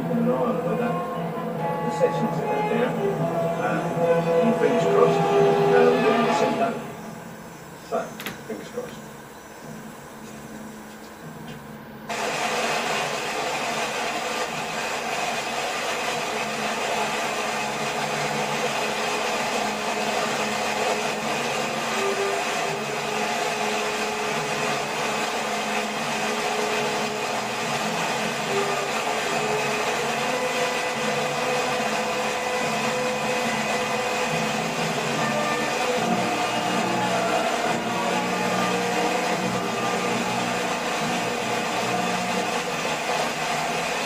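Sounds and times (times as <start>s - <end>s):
falling water rushing: 12.1s - 44.0s.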